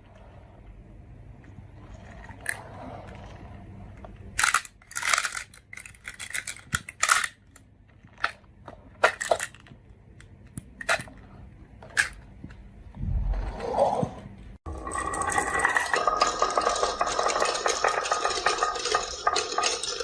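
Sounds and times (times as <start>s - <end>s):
marbles clicking on wooden run: 14.7s - 20.0s.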